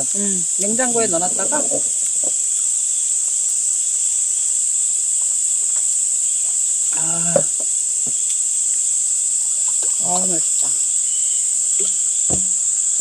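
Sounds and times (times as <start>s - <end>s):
insect chorus: 0.0s - 13.0s
murmured voice: 6.9s - 7.7s.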